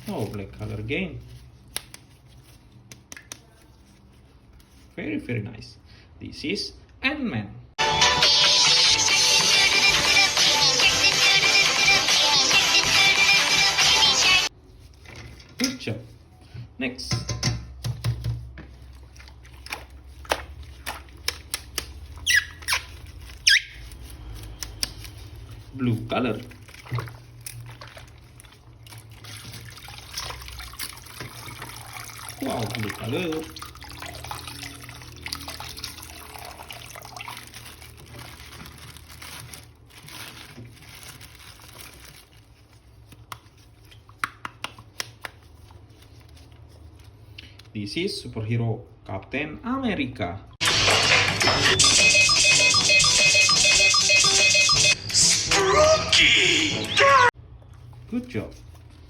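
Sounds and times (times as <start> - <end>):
water running and splashing: 18.8 - 23.4, 25.1 - 38.7
short squeak: 22.2 - 23.8.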